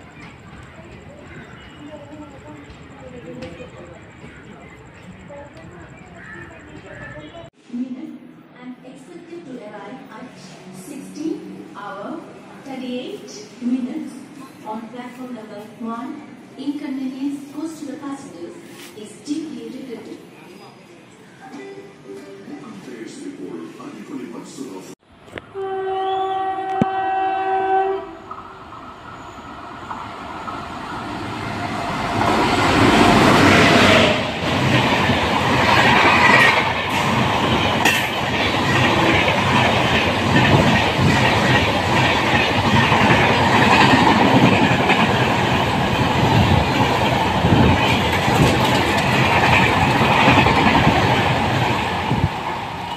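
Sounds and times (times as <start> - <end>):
train rumble: 0.0 - 7.6, 26.6 - 52.9
locomotive horn blast: 25.4 - 28.3.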